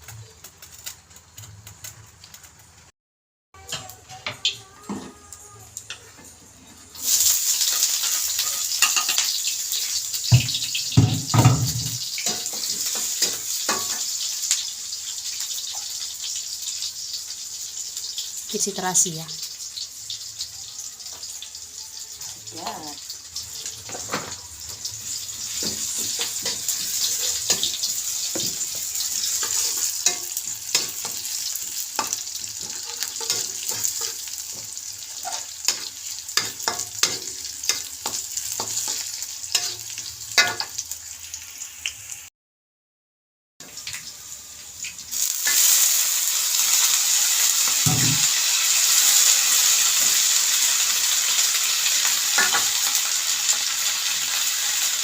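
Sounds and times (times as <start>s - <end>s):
stir-fry sizzling in a pan: 0.0s - 2.9s, 3.6s - 42.3s, 43.6s - 55.0s
spatula clicking and scraping: 32.0s - 34.6s.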